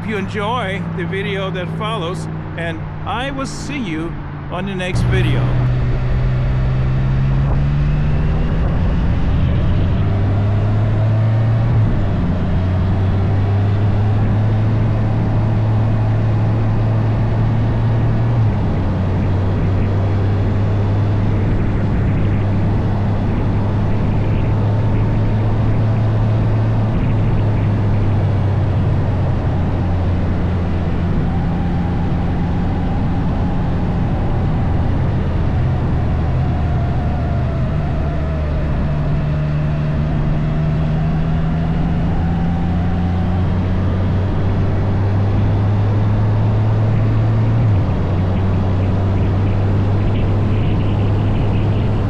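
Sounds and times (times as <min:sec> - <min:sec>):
wind and road noise: 0:00.0 - 0:52.0.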